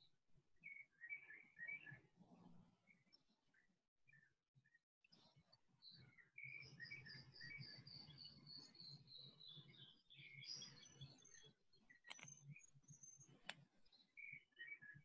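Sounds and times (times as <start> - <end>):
bird chirping: 5.8 - 15.0.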